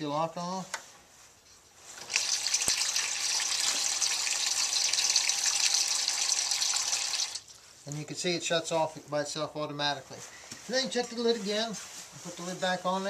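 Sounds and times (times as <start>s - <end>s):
water gushing into bowl: 2.1s - 7.4s.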